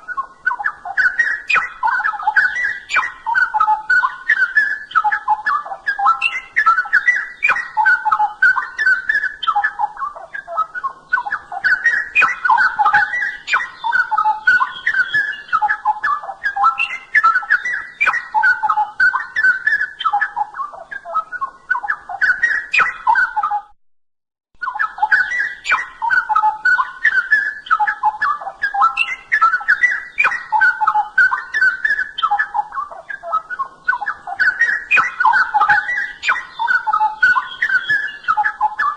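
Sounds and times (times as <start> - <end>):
bird singing warbled phrases: 0.0 - 23.8, 24.6 - 38.9.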